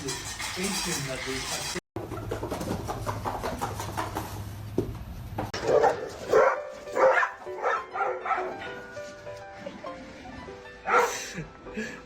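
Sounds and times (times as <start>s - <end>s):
dog barking: 5.6s - 8.8s, 10.8s - 11.2s.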